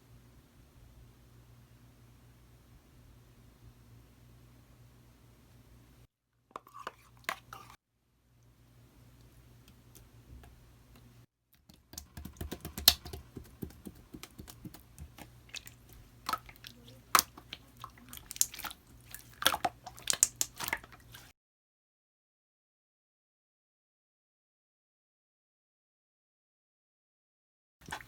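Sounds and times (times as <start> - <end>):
faint steady hum: 0.0 - 11.2, 12.0 - 21.3
slime sticky clicks and pops: 12.0 - 13.2.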